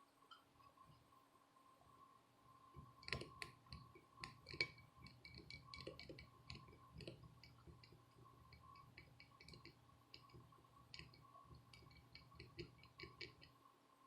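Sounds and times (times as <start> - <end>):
faint steady tone: 0.0 - 14.0
tools tapping circuit board: 2.8 - 13.6.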